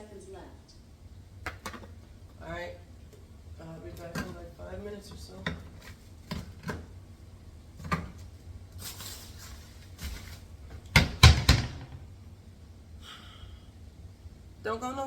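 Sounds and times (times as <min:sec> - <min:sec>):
household knocks and clicks: 0:10.9 - 0:12.1.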